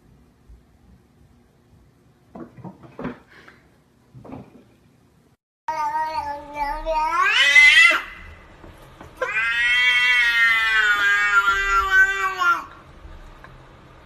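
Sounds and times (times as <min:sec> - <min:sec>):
cat yowling: 0:05.7 - 0:08.3, 0:09.2 - 0:12.7.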